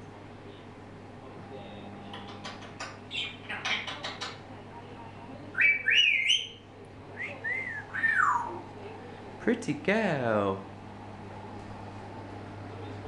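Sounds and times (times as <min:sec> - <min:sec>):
parrot clicking: 0:02.1 - 0:04.4
parrot whistling: 0:05.6 - 0:06.6, 0:07.2 - 0:08.6.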